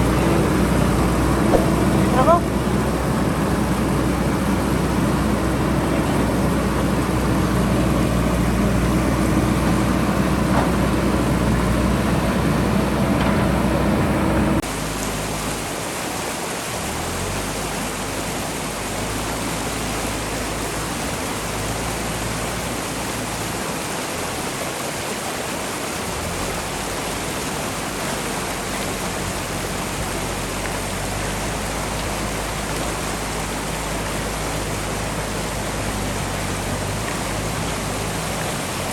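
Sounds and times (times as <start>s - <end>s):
diesel engine running: 0.0s - 15.8s, 26.1s - 38.9s
fast-flowing river rushing: 0.0s - 38.9s.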